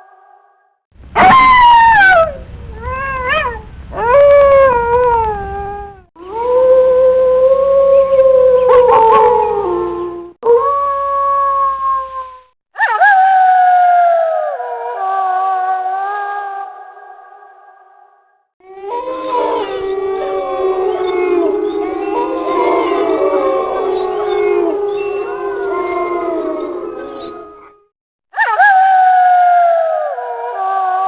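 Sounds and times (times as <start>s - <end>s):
wolf yips: 1.2s - 6.5s, 18.8s - 27.8s
wolves howling: 1.2s - 12.4s, 18.6s - 27.9s.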